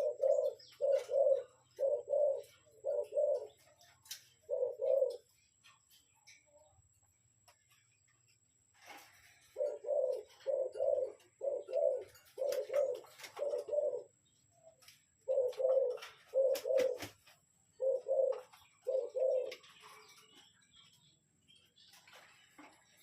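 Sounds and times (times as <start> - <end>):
dove cooing: 0.0 - 5.8, 8.8 - 20.4.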